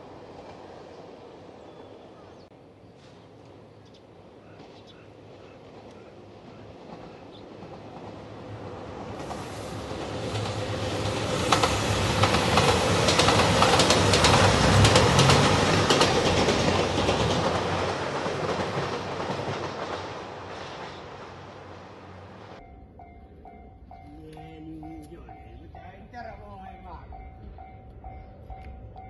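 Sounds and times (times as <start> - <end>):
diesel train passing: 0.0 - 29.0
wheels clacking over rail joints: 4.5 - 22.6.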